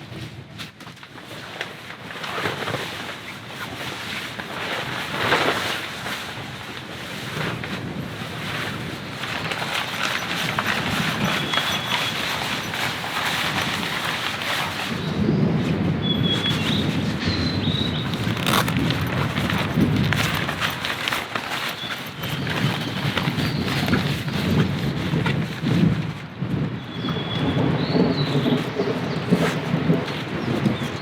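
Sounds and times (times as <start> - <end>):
heavy rain: 22.5 - 31.0.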